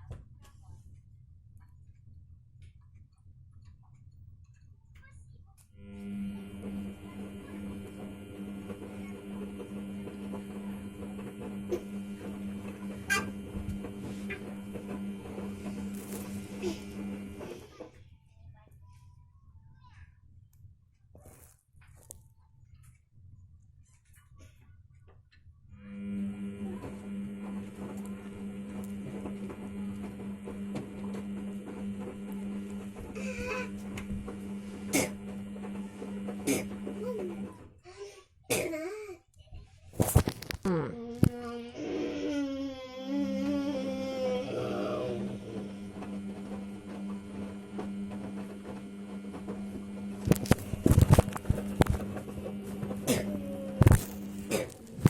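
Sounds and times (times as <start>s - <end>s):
washing machine humming: 5.8s - 17.9s, 25.8s - 37.8s, 40.0s - 55.0s.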